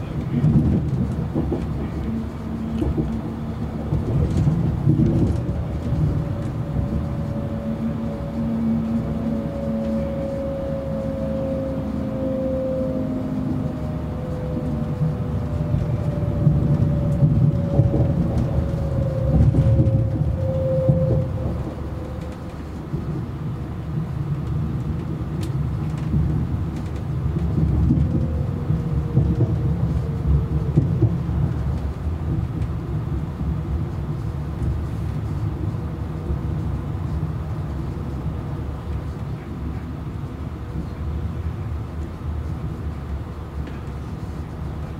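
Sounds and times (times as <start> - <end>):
train wheels rumbling on rails: 0.0 - 44.9
faint falling whine: 5.1 - 22.9.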